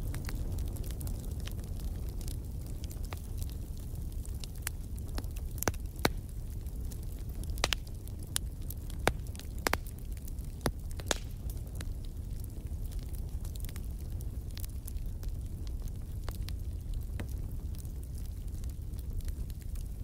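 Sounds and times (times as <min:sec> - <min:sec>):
fire rumbling in fireplace: 0:00.0 - 0:20.0
logs crackling and popping: 0:00.0 - 0:20.0.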